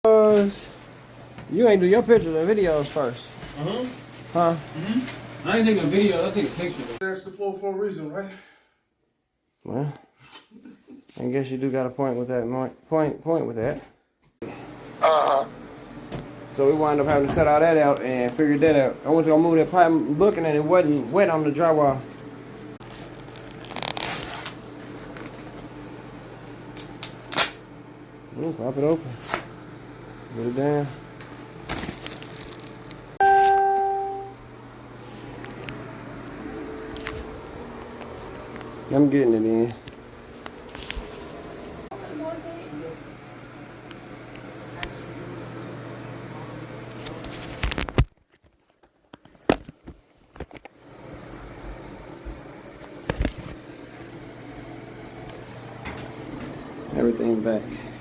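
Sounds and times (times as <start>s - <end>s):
low steady hum: 14.5s - 47.9s.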